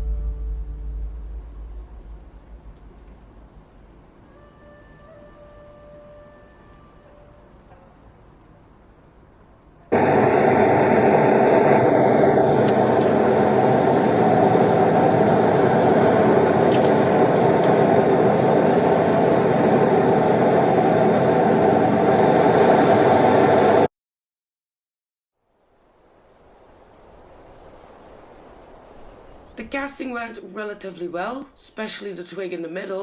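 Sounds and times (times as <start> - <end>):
gas torch flame rushing: 9.9 - 23.9.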